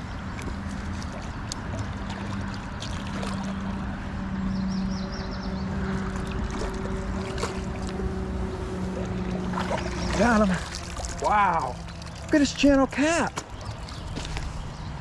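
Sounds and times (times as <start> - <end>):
creek water running: 0.0 - 4.4, 5.8 - 15.0
low steady hum: 0.0 - 15.0.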